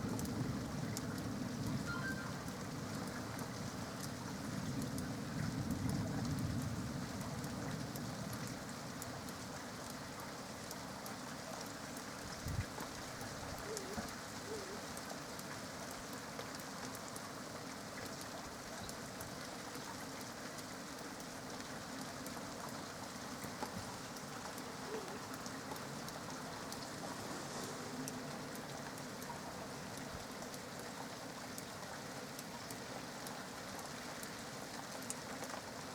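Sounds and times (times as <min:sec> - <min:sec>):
rain pattering on surfaces: 0:00.0 - 0:35.9.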